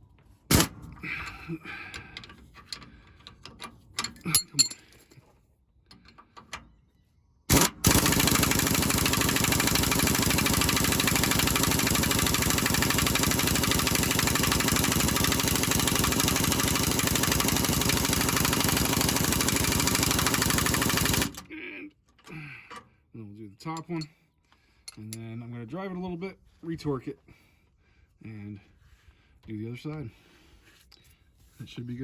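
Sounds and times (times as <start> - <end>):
impact wrench running: 7.5 - 21.4.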